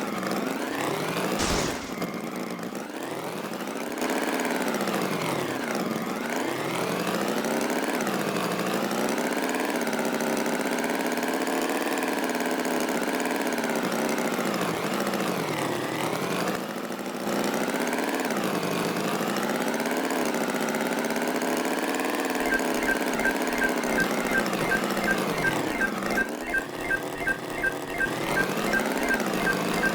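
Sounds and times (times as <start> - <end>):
tractor engine running: 22.3 - 29.9.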